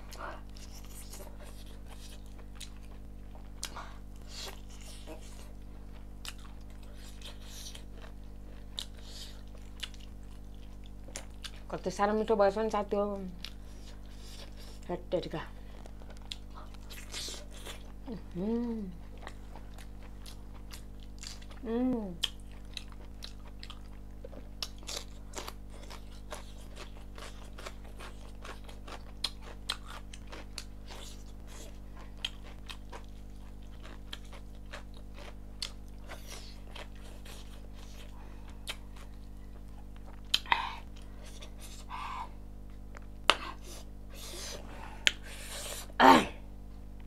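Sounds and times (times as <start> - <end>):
low steady hum: 0.0 - 47.0
wet chewing smacks: 22.2 - 41.9.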